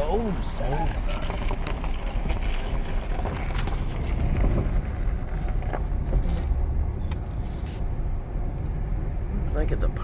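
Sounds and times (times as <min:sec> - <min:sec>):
car engine and tyres rumbling: 0:00.0 - 0:10.0
small crackles and knocks: 0:00.8 - 0:07.4.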